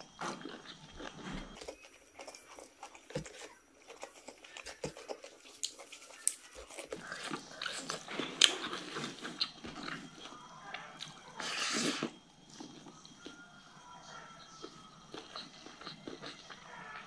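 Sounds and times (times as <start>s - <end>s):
chewing and mouth smacks: 0.2s - 11.2s, 14.4s - 17.0s.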